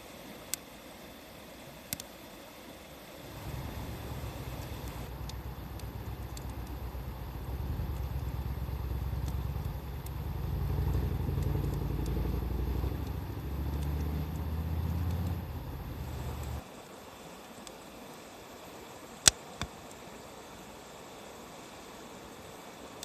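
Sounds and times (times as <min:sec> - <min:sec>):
vehicle engine rumble: 0:03.2 - 0:16.6
wood fire crackling: 0:03.2 - 0:16.6.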